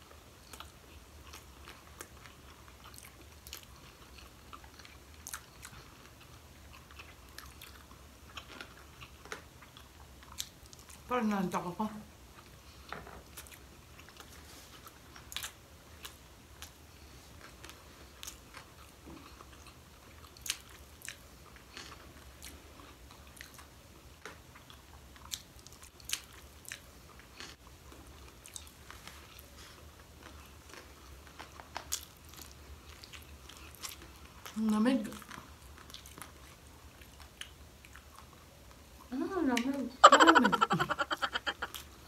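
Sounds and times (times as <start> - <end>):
people chewing: 0.0 - 11.1, 12.3 - 42.0
wet mouth sounds: 40.0 - 41.9.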